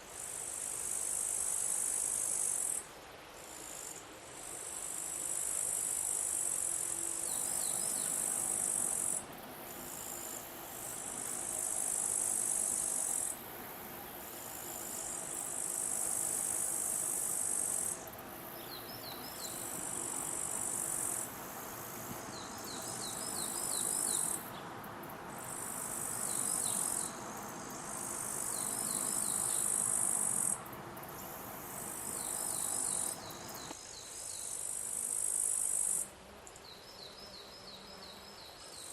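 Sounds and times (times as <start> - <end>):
insects trilling: 4.7 - 33.9.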